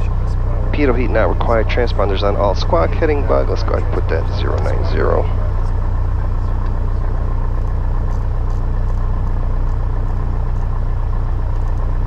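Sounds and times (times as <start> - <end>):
aircraft engine running steadily: 0.0 - 12.0.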